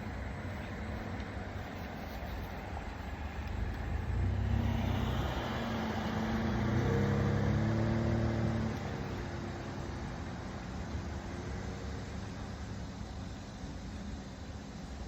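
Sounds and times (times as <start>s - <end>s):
car driving by: 4.0s - 9.6s.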